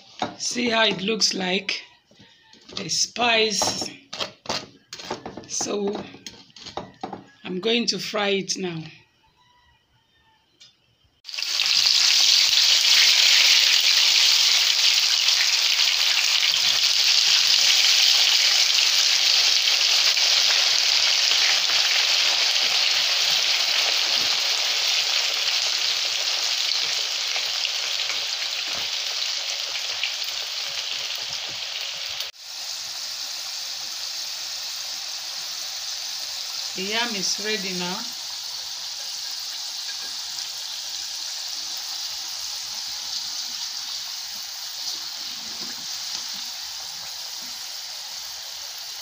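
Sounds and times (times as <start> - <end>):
deep-frying sizzle: 11.2 - 49.0.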